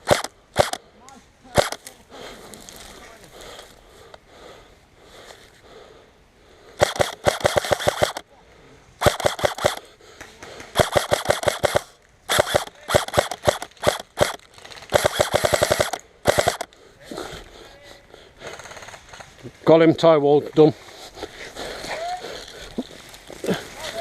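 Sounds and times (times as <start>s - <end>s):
airsoft gun firing bursts: 0.0s - 0.8s, 1.6s - 1.8s, 6.8s - 8.2s, 9.0s - 9.9s, 10.7s - 16.7s.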